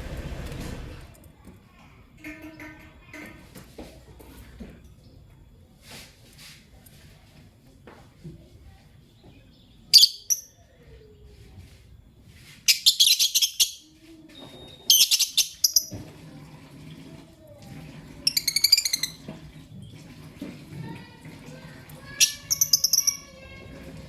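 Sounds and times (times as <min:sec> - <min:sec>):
bird chirping shrilly: 0:10.0 - 0:10.5, 0:12.7 - 0:13.9, 0:14.9 - 0:15.9, 0:18.3 - 0:19.2, 0:22.2 - 0:23.3.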